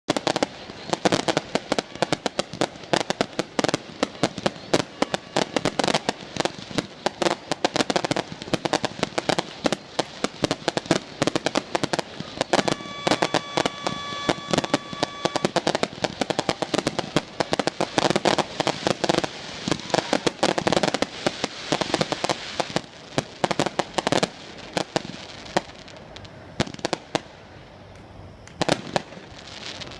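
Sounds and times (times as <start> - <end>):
fireworks bursting and crackling: 0.1 - 29.9
steady tone: 12.4 - 15.8.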